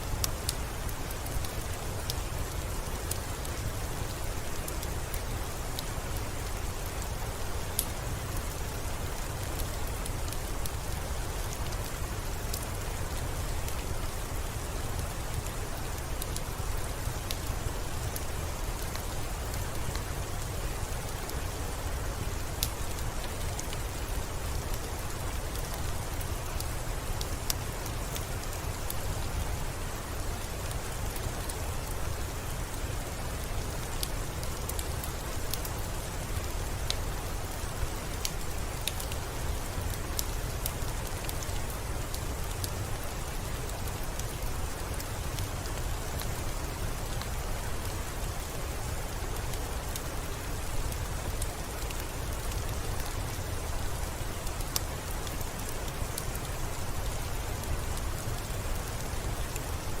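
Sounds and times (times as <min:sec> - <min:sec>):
steady rainfall: 0:00.0 - 1:00.0
sharp raindrop ticks: 0:00.1 - 1:00.0.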